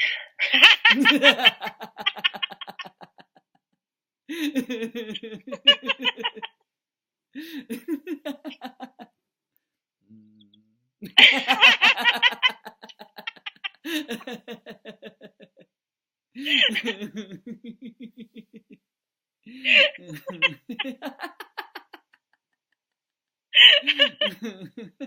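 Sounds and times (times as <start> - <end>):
people laughing heartily: 0.4 - 3.5, 4.3 - 6.6, 7.4 - 9.1, 11.0 - 15.6, 16.4 - 18.8, 19.5 - 22.3, 23.6 - 25.0.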